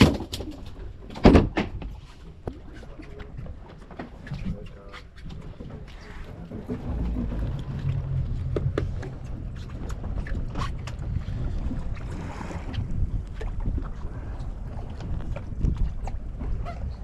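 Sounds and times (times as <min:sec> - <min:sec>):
boat engine rumble: 0:00.0 - 0:17.0
water splashes and knocks: 0:00.0 - 0:17.0
wind buffeting microphone: 0:05.3 - 0:17.0.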